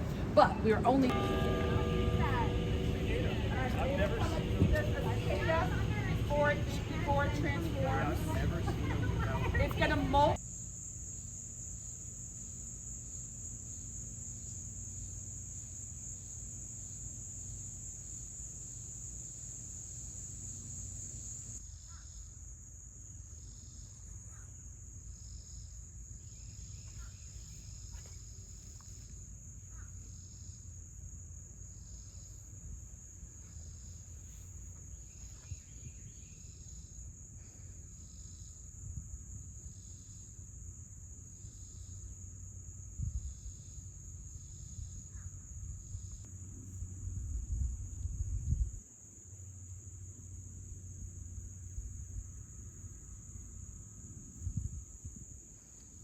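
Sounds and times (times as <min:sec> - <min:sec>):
rhythmic chirping: 0:00.0 - 0:10.4
insects trilling: 0:00.0 - 0:56.0.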